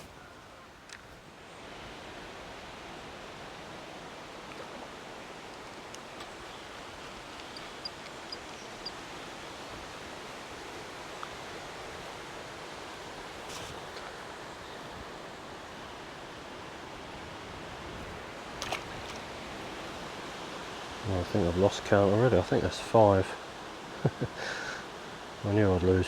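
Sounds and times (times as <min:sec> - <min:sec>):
river water rushing: 0:00.0 - 0:26.0
faint clicks and ticks: 0:07.1 - 0:09.0.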